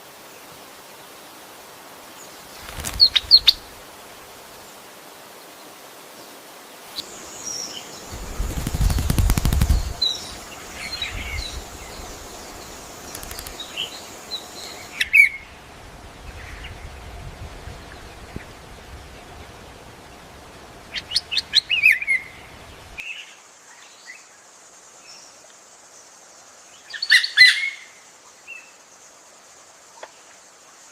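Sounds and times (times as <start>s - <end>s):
birds chirping: 2.5s - 4.5s, 6.9s - 19.4s, 20.0s - 23.0s
wings fluttering: 2.5s - 4.6s, 6.9s - 15.6s.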